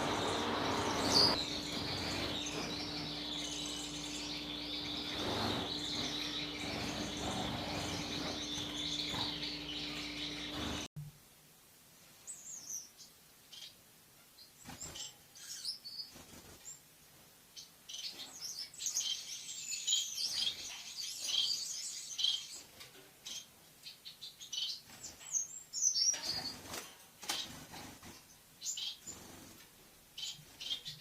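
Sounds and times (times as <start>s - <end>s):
bird chirping rapidly: 0.0s - 10.9s.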